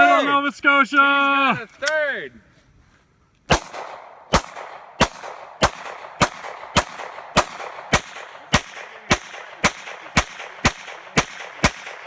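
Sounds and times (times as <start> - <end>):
pistol shots with echo: 3.5 - 12.0.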